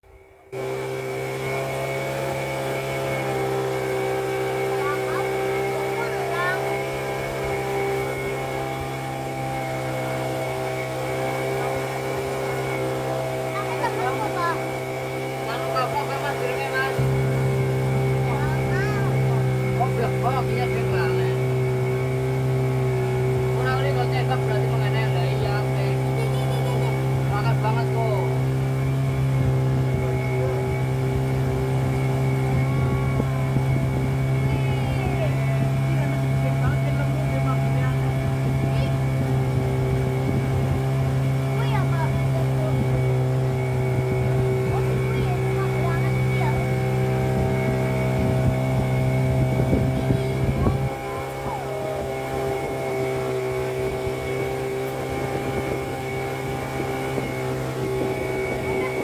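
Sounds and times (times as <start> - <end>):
engine droning: 0.0 - 59.0.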